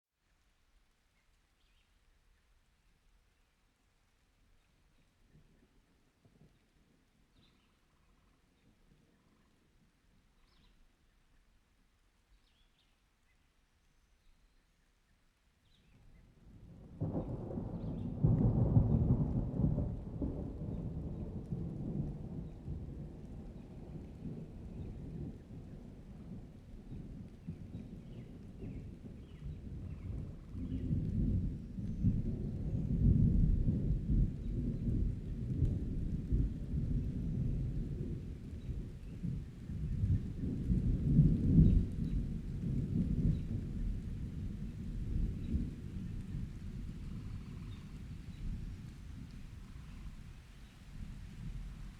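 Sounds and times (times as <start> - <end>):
rain: 0.2 - 51.9
thunderclap: 16.7 - 51.9.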